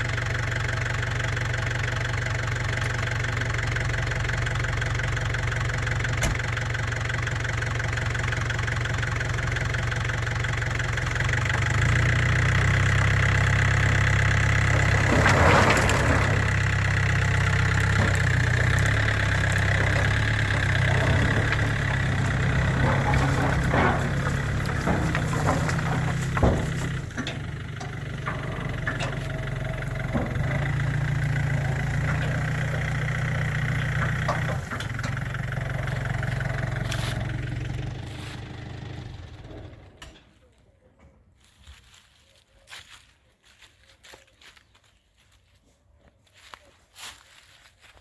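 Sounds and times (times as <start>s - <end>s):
tractor diesel engine running: 0.0s - 40.6s
knocks and clatter: 6.0s - 6.8s, 8.8s - 40.3s.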